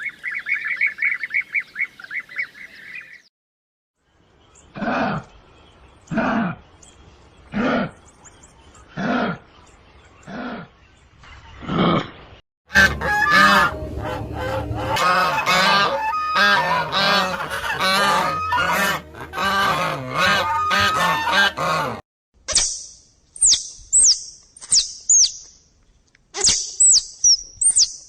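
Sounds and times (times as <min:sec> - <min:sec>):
flock of birds calling: 0:12.7 - 0:22.0.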